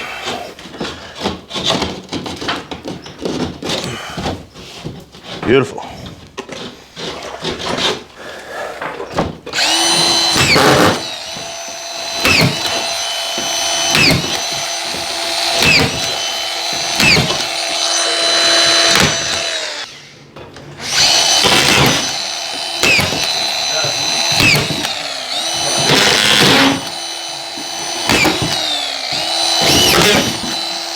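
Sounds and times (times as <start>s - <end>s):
power screwdriver whining: 9.5s - 20.2s, 20.8s - 30.9s.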